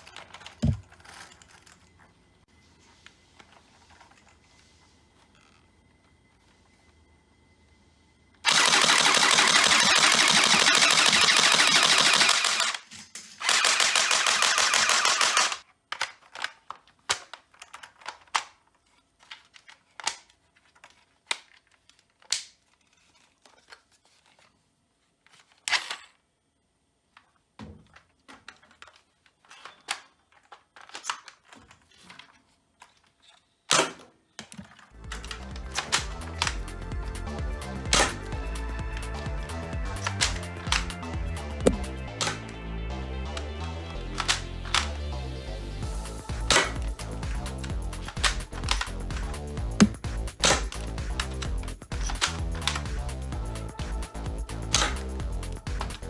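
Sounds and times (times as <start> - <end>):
toy dart blaster firing rapidly: 8.5 - 15.6, 35.2 - 37.2, 37.9 - 38.6, 39.9 - 42.4, 45.9 - 54.0, 54.7 - 56.0
sharp clicks and knocks: 46.5 - 53.4.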